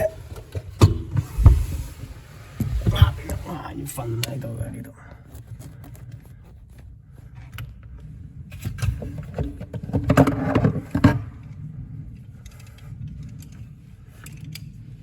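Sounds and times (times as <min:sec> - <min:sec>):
low rumbling shuffles: 0:00.0 - 0:04.2.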